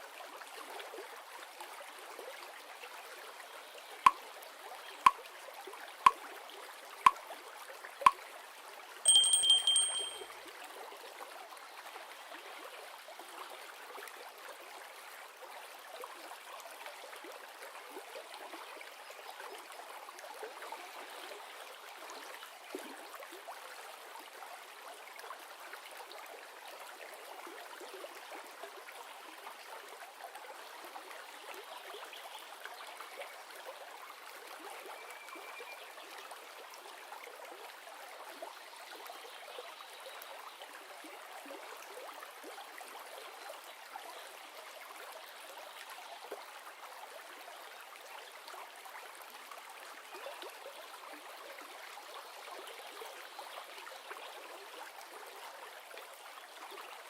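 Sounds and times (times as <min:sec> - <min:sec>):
river water flowing: 0:09.1 - 0:10.2.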